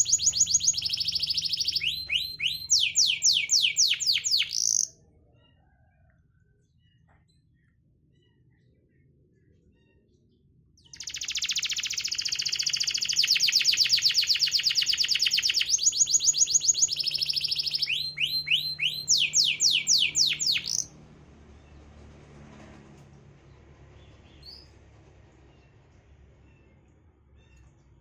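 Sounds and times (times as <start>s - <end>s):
canary singing: 0.0s - 4.9s, 10.9s - 20.9s.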